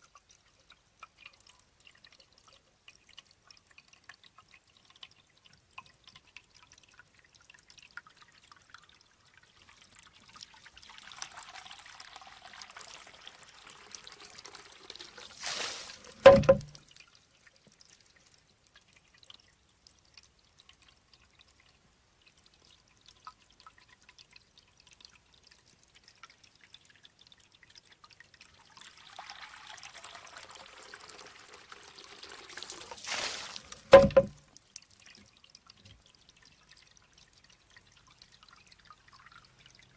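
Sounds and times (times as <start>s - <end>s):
faint water drips: 0.0s - 39.9s
water trickling into bamboo tube: 0.0s - 39.9s
water spilling out in a rush: 9.8s - 16.9s, 28.6s - 34.4s
bamboo tube clacking on stone: 16.1s - 16.8s, 33.6s - 34.5s.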